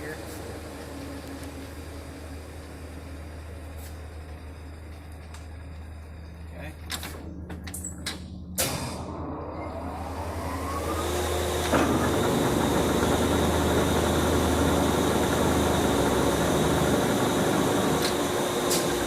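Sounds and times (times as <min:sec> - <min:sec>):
lathe whirring hum with whine: 0:00.0 - 0:19.0
lathe clunk: 0:11.6 - 0:13.3.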